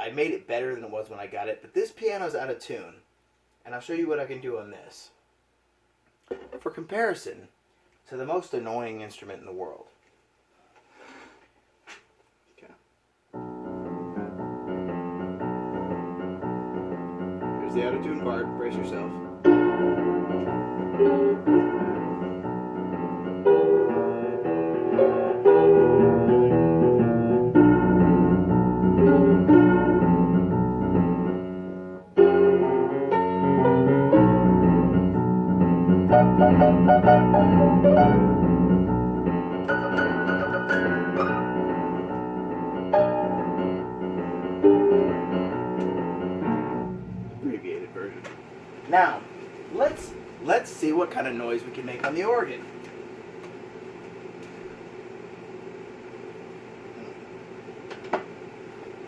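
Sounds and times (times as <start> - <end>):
out-of-tune piano playing: 13.4 - 47.5.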